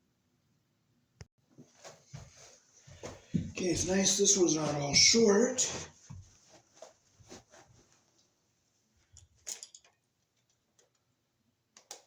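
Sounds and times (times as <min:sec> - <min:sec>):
faint clicks and taps on wiring: 0:11.8 - 0:12.0.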